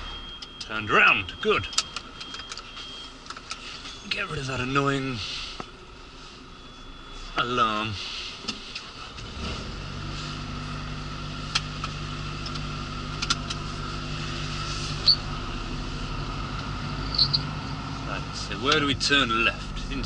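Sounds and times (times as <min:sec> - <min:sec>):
truck diesel engine: 0:06.6 - 0:20.0.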